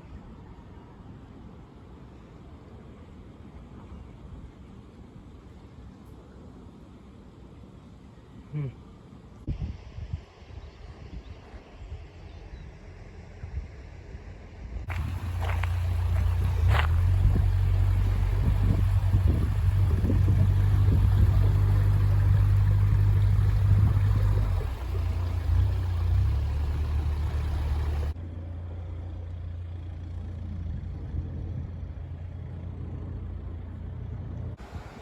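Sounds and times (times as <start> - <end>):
engine running with low hum: 12.0 - 35.0.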